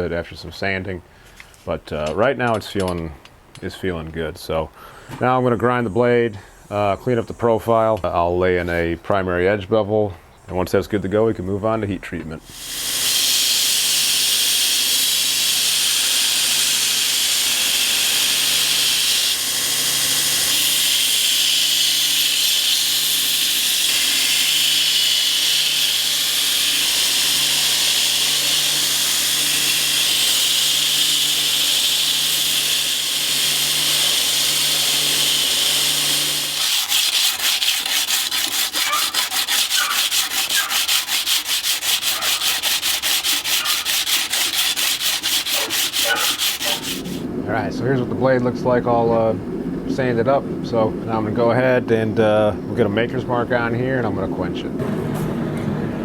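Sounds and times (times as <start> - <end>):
belt grinder grinding steel: 12.5 - 47.3
hand sanding strokes on blade: 12.5 - 47.3.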